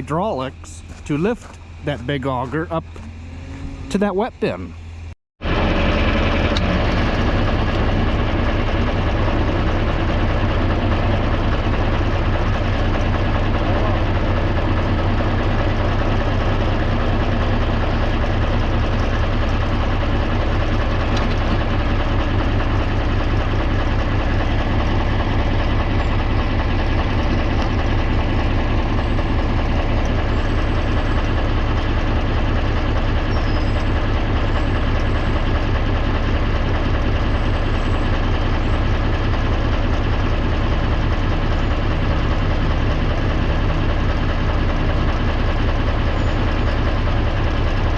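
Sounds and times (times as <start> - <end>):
tractor engine running: 0.0 - 47.9.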